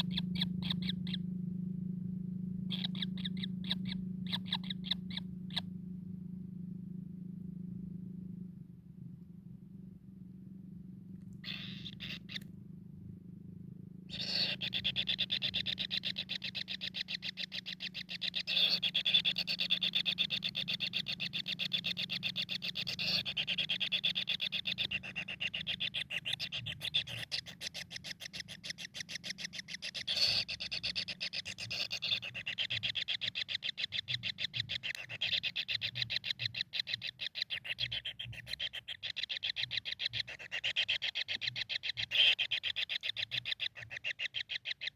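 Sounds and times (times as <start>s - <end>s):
low hum: 0.0s - 22.9s.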